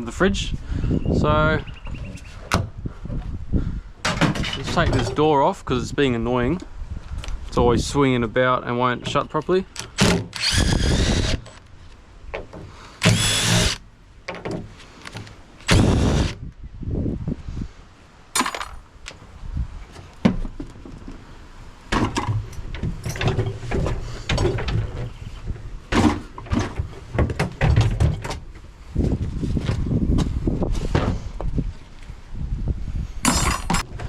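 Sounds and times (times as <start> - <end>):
knocks clunks and rattles: 1.8 - 3.4, 4.0 - 5.4, 8.9 - 11.6, 12.3 - 16.3, 19.9 - 21.3, 21.9 - 28.6
handling noise: 18.4 - 19.2.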